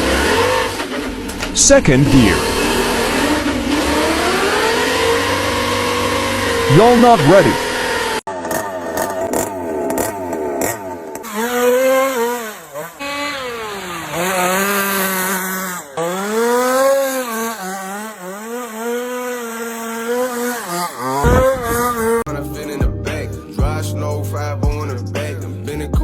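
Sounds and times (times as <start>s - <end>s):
rc car engine revving: 0.0s - 22.3s
loud low thump: 21.2s - 22.3s.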